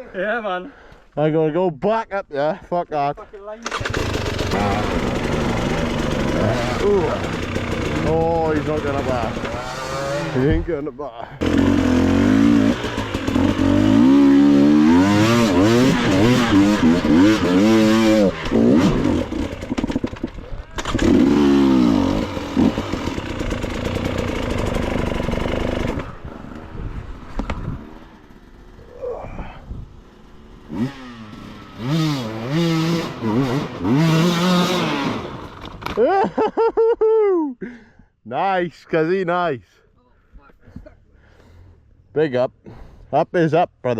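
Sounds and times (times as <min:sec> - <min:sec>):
dirt bike engine revving: 0:03.6 - 0:10.8, 0:11.4 - 0:29.0, 0:29.9 - 0:35.7.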